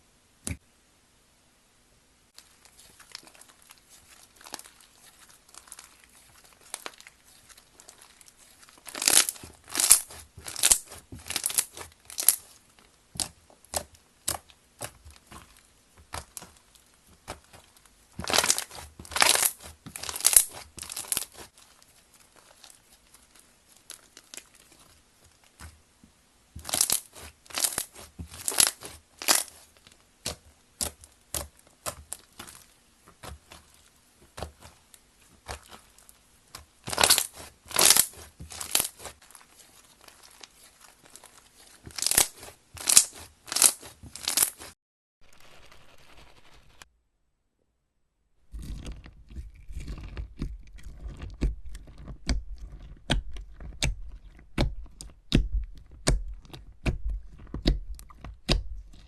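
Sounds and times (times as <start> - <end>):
slime crackling by hand: 2.4 - 44.8.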